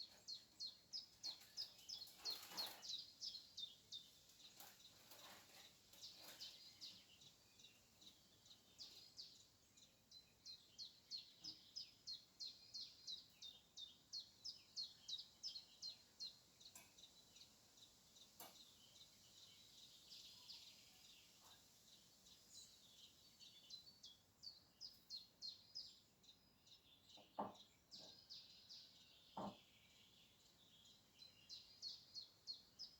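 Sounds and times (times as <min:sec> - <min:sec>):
small songbird singing: 0:00.0 - 0:32.9
faint knocks: 0:27.2 - 0:28.2, 0:29.4 - 0:29.6.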